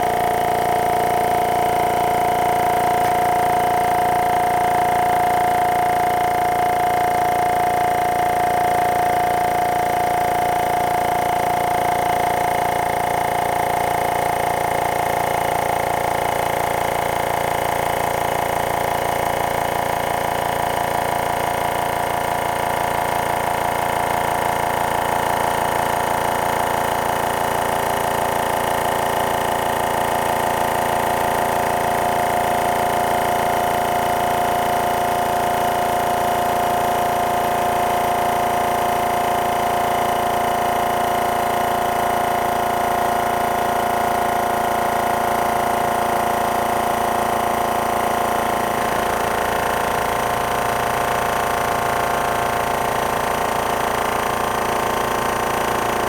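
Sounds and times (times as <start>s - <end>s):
air compressor humming: 0.0s - 56.0s.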